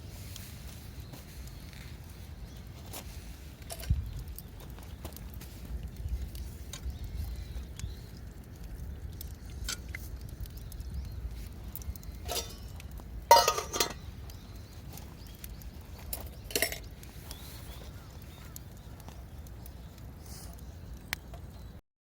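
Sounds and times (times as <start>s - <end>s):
cookware clinking and knocking: 13.3s - 14.0s.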